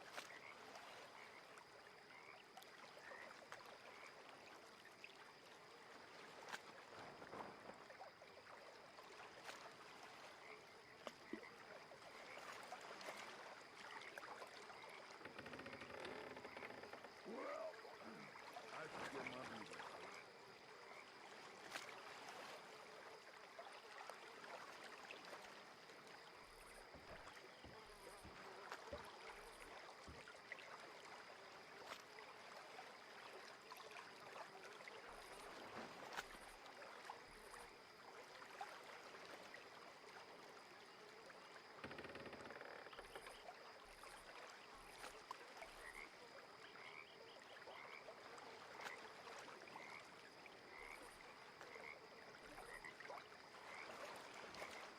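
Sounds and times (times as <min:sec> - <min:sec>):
frogs calling: 0:10.4 - 0:21.2, 0:45.7 - 0:48.1, 0:49.6 - 0:53.1.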